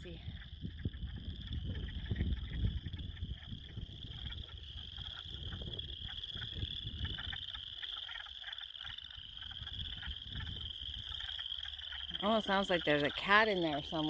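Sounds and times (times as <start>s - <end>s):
frogs chorus trilling: 0.0s - 14.0s.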